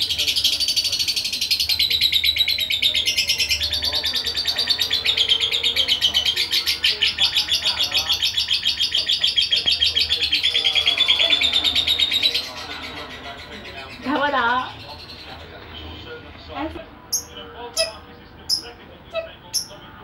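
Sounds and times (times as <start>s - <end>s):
lovebird chattering chirps: 17.1s - 19.8s.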